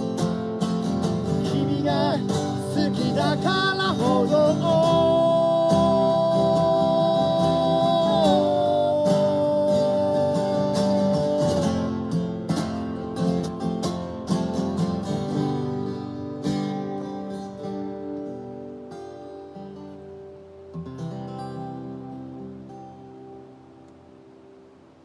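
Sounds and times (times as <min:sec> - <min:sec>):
acoustic guitar strumming chords: 0:00.0 - 0:24.7.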